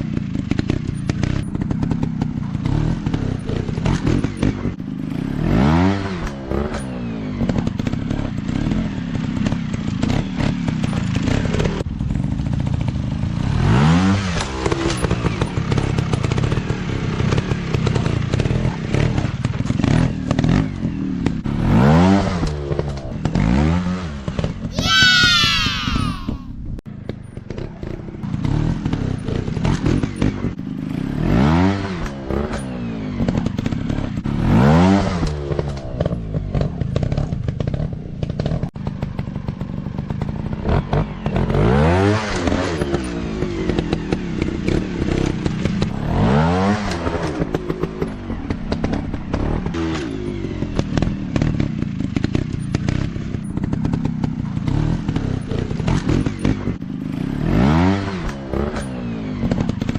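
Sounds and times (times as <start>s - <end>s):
dirt bike engine revving: 0.4s - 11.8s, 18.4s - 26.4s, 27.4s - 37.8s, 50.8s - 59.9s.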